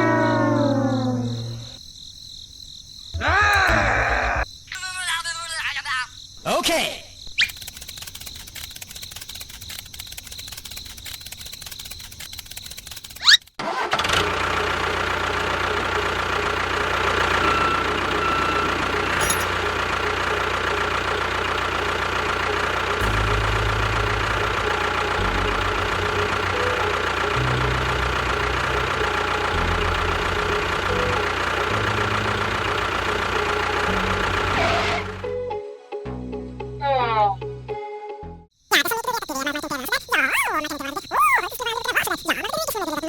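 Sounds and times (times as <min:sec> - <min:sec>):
engine idling: 0:07.5 - 0:35.3
deep low throb: 0:23.0 - 0:34.6.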